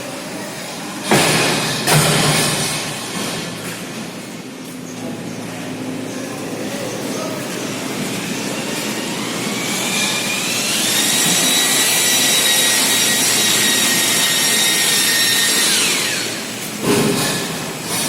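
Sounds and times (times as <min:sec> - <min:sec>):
electric motor whine: 0:08.2 - 0:16.6.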